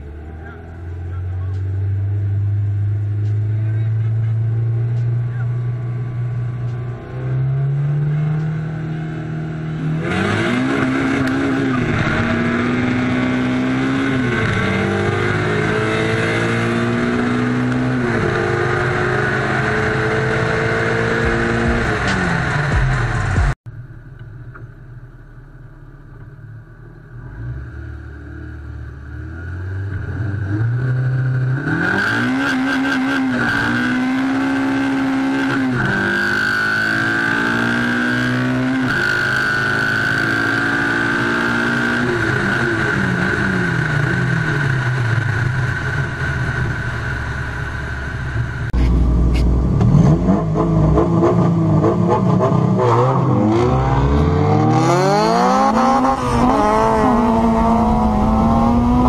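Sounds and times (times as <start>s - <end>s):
deeper engine revving: 0.0s - 24.8s, 25.6s - 59.0s
car engine at full throttle: 0.0s - 59.0s.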